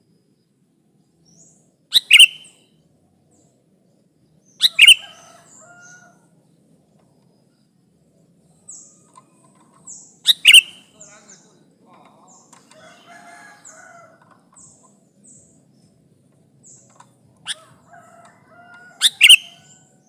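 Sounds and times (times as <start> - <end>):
high falling bird chirps: 1.3 - 2.8, 4.3 - 6.2, 8.5 - 11.6, 16.6 - 19.9
bird double-note calls: 1.9 - 2.7, 4.6 - 5.9, 10.2 - 11.4, 19.0 - 19.9.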